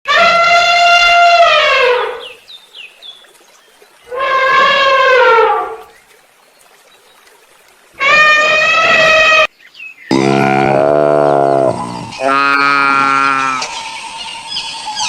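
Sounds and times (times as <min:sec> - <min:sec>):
horn-like animal calls: 0:00.1 - 0:02.4, 0:04.0 - 0:05.9, 0:08.0 - 0:09.5, 0:10.1 - 0:13.7.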